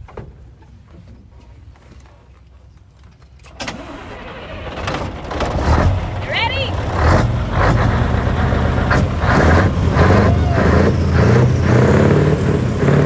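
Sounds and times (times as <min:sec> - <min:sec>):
diesel truck engine revving: 0:03.6 - 0:13.0.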